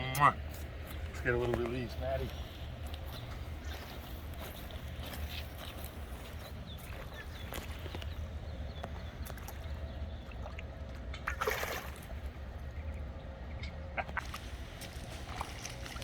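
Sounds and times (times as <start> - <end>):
low steady rumble: 0.0 - 16.0
water splashing: 8.9 - 12.7, 14.0 - 16.0.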